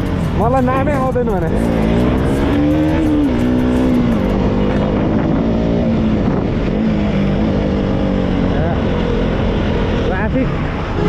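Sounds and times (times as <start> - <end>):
motorcycle engine running: 0.0 - 11.0
wind noise on microphone: 2.9 - 11.0.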